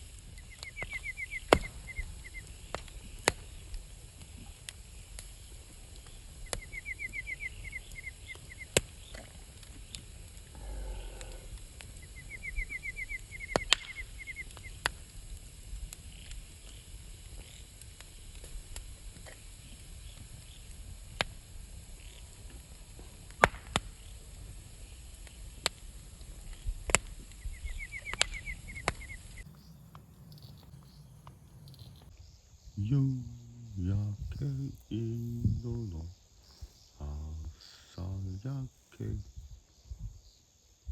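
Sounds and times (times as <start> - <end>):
wood fire crackling and popping: 0.0 - 32.1
rapid chirping trill: 5.2 - 9.2, 12.0 - 14.8.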